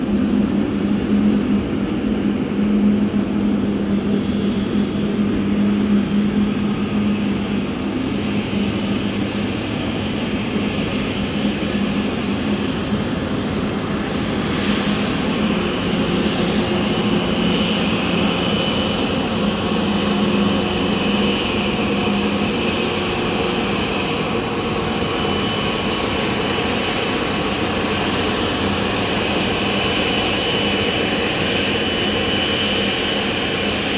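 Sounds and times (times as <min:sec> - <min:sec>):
high fan whine: 0:00.0 - 0:33.9
jet engine roar: 0:00.0 - 0:33.9.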